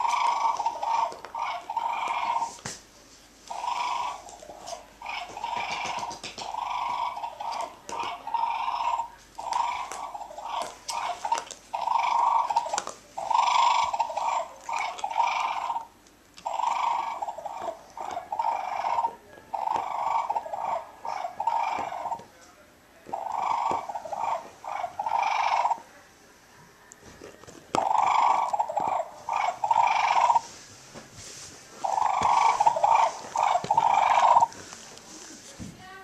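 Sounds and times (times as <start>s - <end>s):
dog growling: 0.0s - 2.6s, 3.5s - 22.3s, 23.1s - 25.8s, 27.2s - 30.5s, 31.8s - 34.8s.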